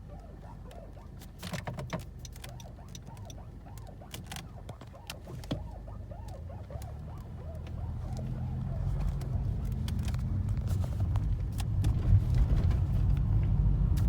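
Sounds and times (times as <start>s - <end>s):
repeated short squeaks: 0.0s - 11.2s
car low steady hum: 0.0s - 14.0s
scattered clicks: 0.1s - 10.8s.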